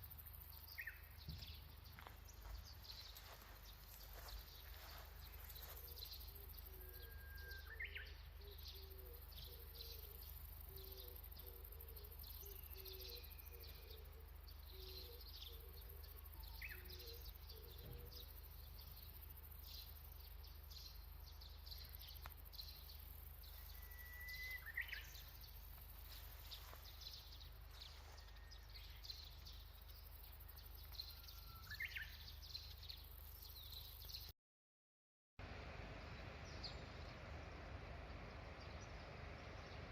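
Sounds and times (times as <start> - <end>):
steady low hum: 0.0 - 31.5
whistled bird calls rising: 6.7 - 8.1, 23.6 - 25.3, 31.1 - 32.2.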